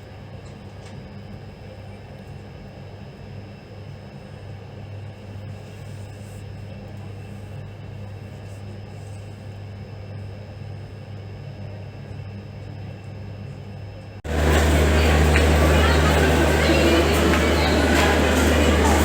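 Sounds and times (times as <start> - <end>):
train rumbling and humming: 14.3 - 19.0.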